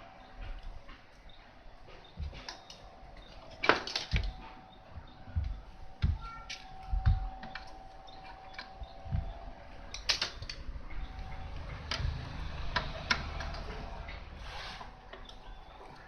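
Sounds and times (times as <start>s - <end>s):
faint steady hum: 0.0s - 16.0s
small hard objects clicking: 6.0s - 13.8s.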